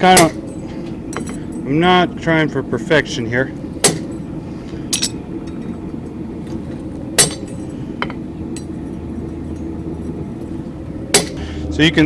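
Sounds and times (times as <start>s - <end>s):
steady low background hum: 0.0s - 12.0s
hammer striking chisel on metal: 3.8s - 4.2s, 7.2s - 8.7s, 11.1s - 11.4s.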